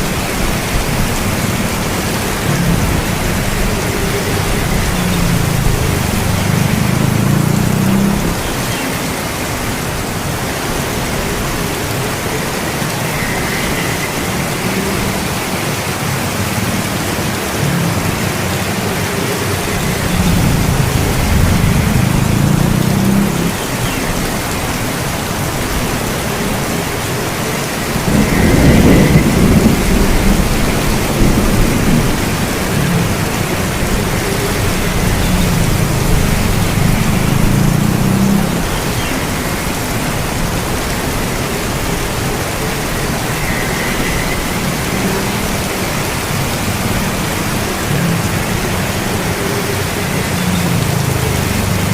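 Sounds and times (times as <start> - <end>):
thunder rolling: 0.0 - 8.4, 19.5 - 38.7
heavy rain: 0.0 - 51.9.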